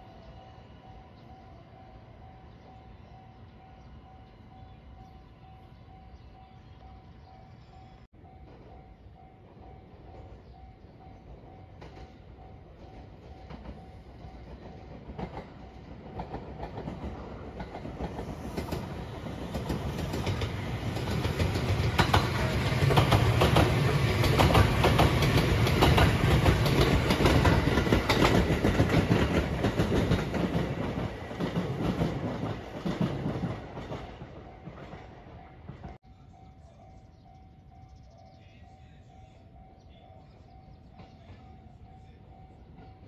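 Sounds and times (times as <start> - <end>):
electric train passing: 0.0 - 43.0
wheels clicking over rail joints: 11.7 - 36.0.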